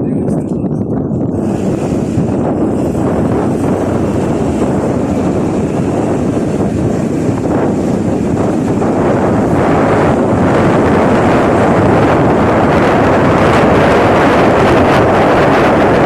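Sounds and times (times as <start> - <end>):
wind blowing over microphone: 0.0 - 16.0.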